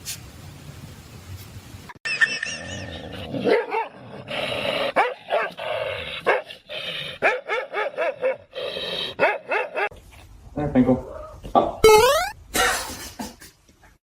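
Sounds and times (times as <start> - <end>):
dog barking and yipping: 3.4 - 4.0, 5.0 - 5.6, 7.2 - 8.5, 9.2 - 9.9.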